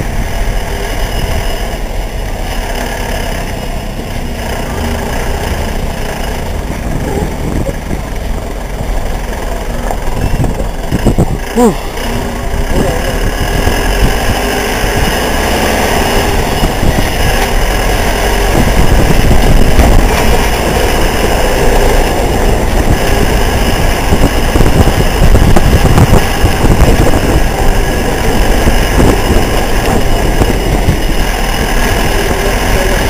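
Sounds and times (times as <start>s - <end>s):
motorcycle engine rumble: 0.0s - 33.0s
road noise: 0.0s - 33.0s.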